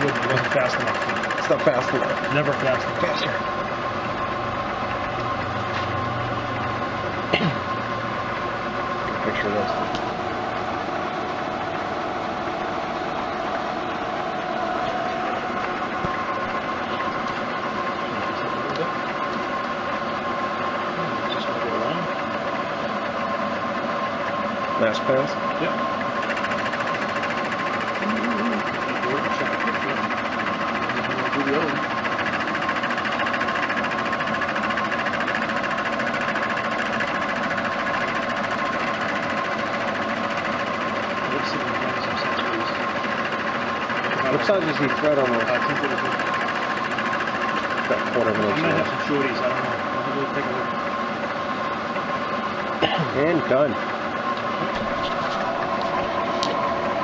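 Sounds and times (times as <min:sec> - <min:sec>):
machine tool cutting metal: 0:00.0 - 0:06.0
metal lathe whining and rattling: 0:00.0 - 0:57.0.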